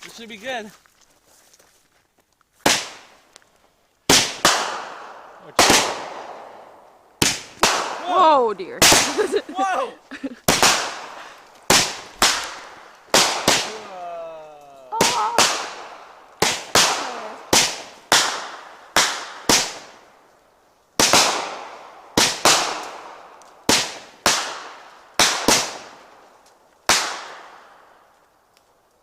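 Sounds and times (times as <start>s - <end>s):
firework bangs: 4.1s - 14.1s, 14.9s - 20.0s, 21.0s - 26.2s, 26.8s - 28.0s.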